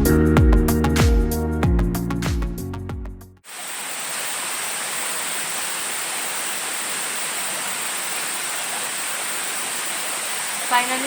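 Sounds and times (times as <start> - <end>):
high hiss: 3.4 - 11.0
flowing water rushing: 3.5 - 11.0.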